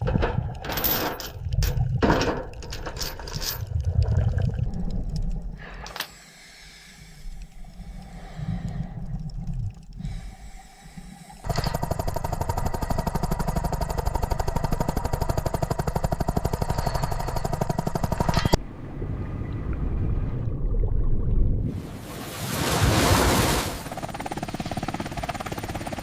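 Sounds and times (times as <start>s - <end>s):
helicopter rotor chopping: 11.4s - 18.6s, 23.7s - 26.0s
low rumble: 15.0s - 21.8s.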